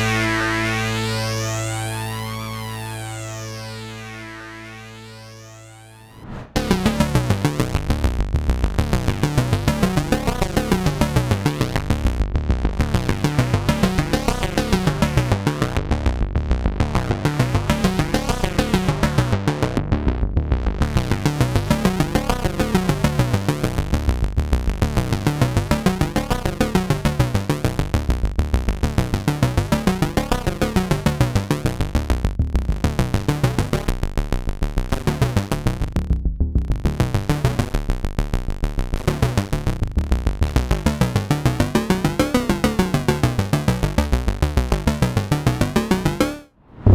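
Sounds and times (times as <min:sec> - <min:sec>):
synthesizer bass sequence: 0:00.0 - 0:27.2.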